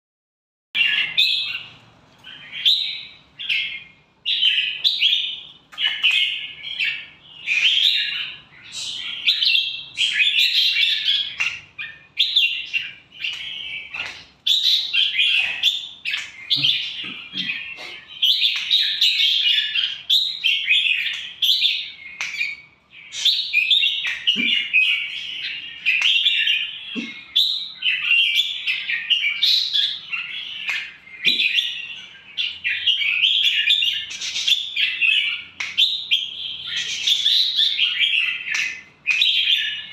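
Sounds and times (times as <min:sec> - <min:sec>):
bird chirping song: 0:00.8 - 0:39.9.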